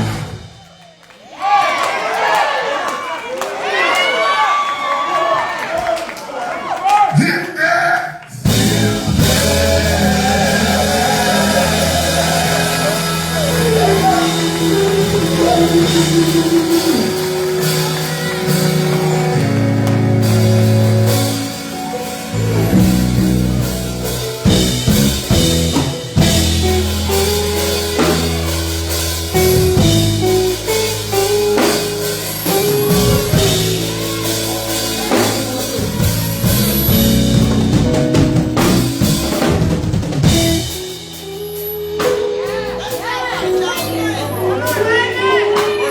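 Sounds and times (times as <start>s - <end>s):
gospel band playing: 0.0s - 6.0s, 8.2s - 45.9s
person singing: 8.3s - 20.3s
drum hits: 8.5s - 40.9s.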